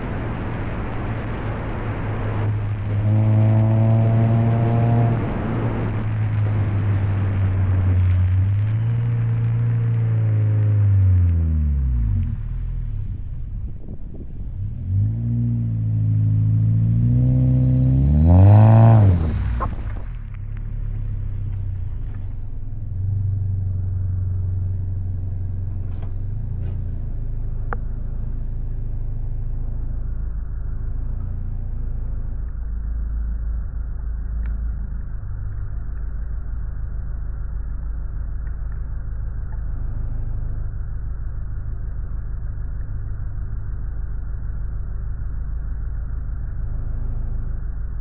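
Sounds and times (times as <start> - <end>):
tyre and road rumble: 0.0 - 43.7
car engine and exhaust drone: 0.0 - 48.0.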